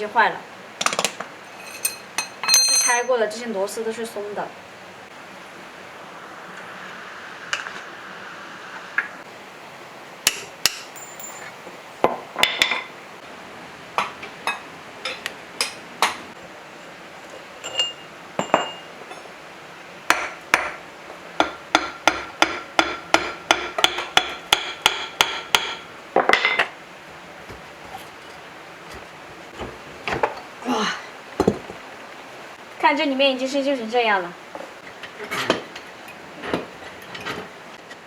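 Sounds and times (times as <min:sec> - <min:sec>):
hammer striking metal: 0:21.4 - 0:26.7.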